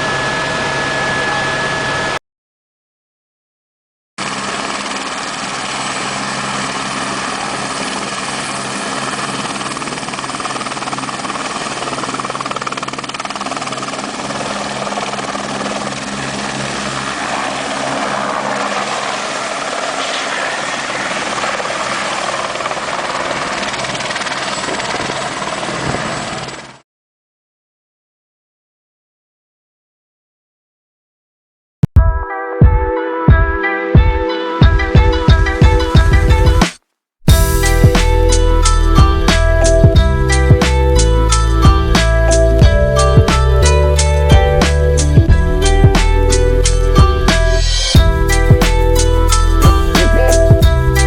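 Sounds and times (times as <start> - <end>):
helicopter turbine and rotor whine: 0.0 - 2.2, 4.2 - 26.8, 37.3 - 51.0.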